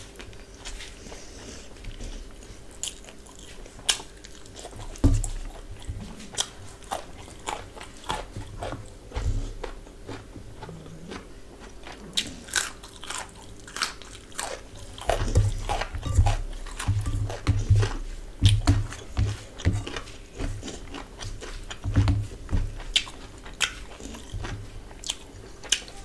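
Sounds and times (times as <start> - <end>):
person chewing crunchy food: 0.0 - 26.0
dull low thumps: 15.1 - 20.7.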